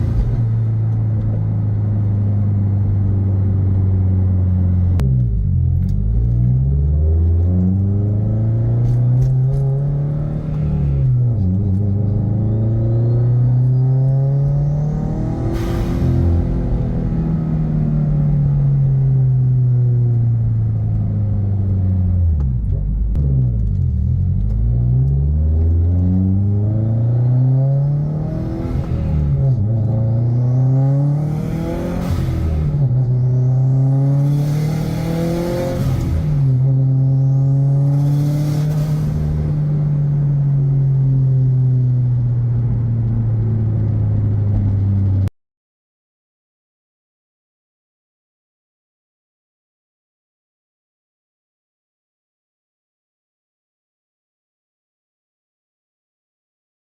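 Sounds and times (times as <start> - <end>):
car engine accelerating: 0.0 - 45.3.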